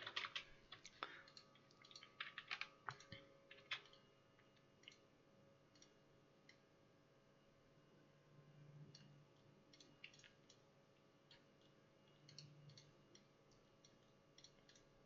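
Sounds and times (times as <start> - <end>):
computer mouse clicks: 0.0 - 4.0, 4.8 - 5.0, 5.7 - 6.6, 9.7 - 10.6, 11.3 - 14.9.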